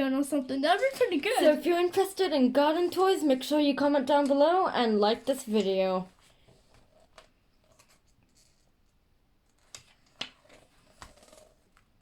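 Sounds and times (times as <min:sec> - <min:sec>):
book pages rustling: 0:05.1 - 0:12.0.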